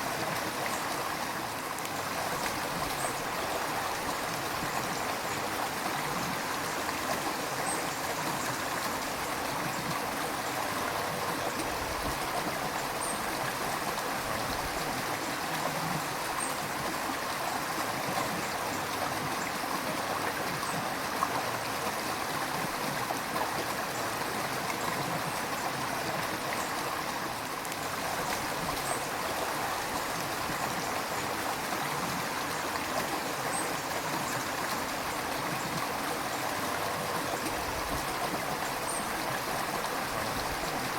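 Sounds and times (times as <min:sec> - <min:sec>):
river rushing and gurgling: 0:00.0 - 0:40.9.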